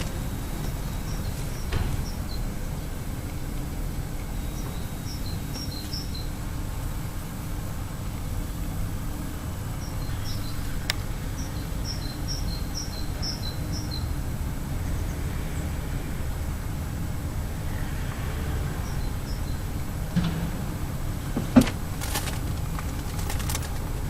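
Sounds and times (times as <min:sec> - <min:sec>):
small birds chirping: 0:00.0 - 0:03.0, 0:04.1 - 0:06.8, 0:09.6 - 0:15.3.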